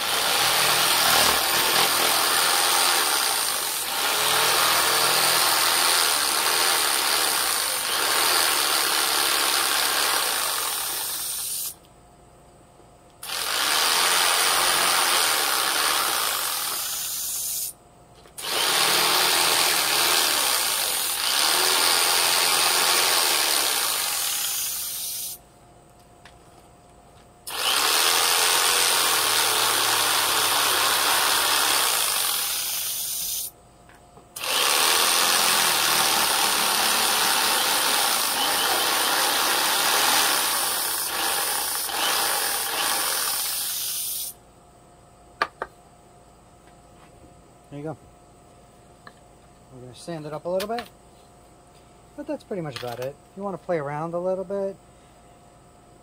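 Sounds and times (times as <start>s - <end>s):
electric power tool on wood: 0.0s - 11.6s, 13.2s - 17.6s, 18.4s - 25.4s, 27.5s - 33.5s, 34.4s - 44.1s.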